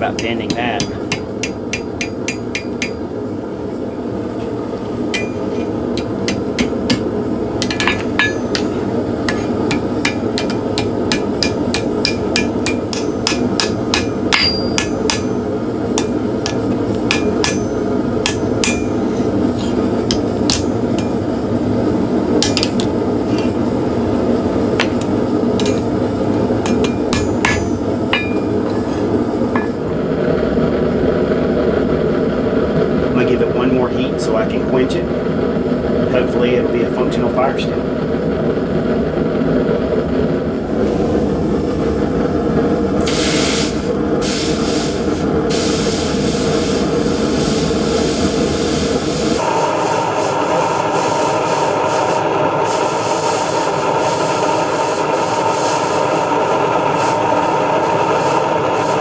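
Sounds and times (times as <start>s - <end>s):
hammer striking steel on anvil: 0.0s - 3.2s, 5.1s - 21.5s, 22.4s - 23.6s, 24.8s - 30.0s
steady low roar: 37.8s - 43.0s.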